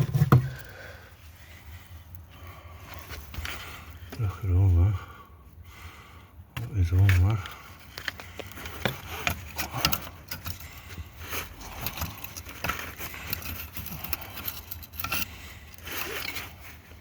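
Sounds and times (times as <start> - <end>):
light metallic clinks and scrapes: 6.6 - 17.0.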